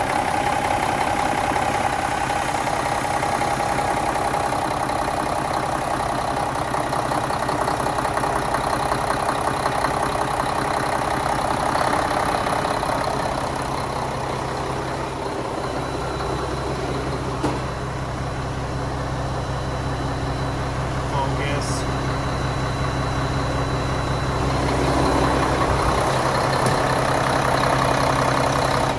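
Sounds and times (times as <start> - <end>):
diesel engine running: 0.0 - 28.9
steady whine: 18.3 - 28.9.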